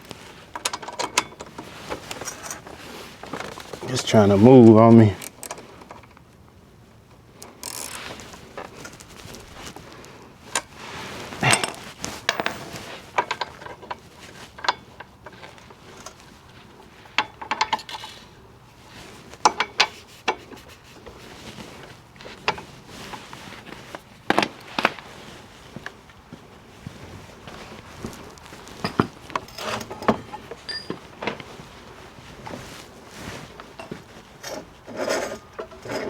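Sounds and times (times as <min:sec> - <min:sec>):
metal tools clinking: 0:11.4 - 0:12.9, 0:28.8 - 0:31.0.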